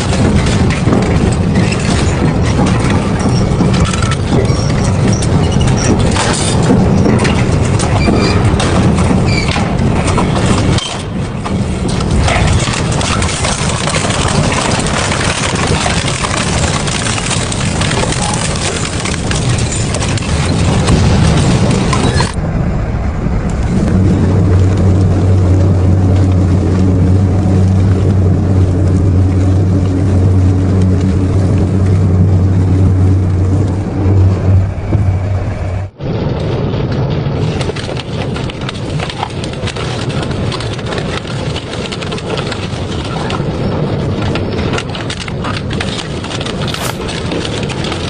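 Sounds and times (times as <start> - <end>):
low motor hum: 0.0 - 36.0.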